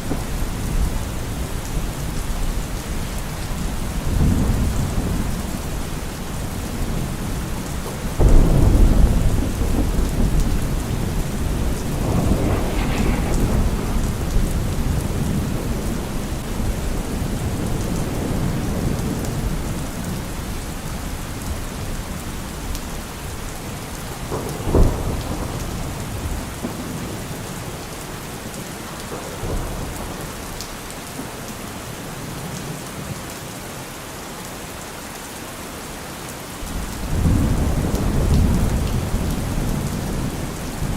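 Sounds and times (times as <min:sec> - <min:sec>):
thunder: 0:00.0 - 0:02.8, 0:03.4 - 0:20.5, 0:23.9 - 0:28.0, 0:29.0 - 0:31.4, 0:36.8 - 0:40.9
heavy rain on a car roof: 0:00.0 - 0:40.9.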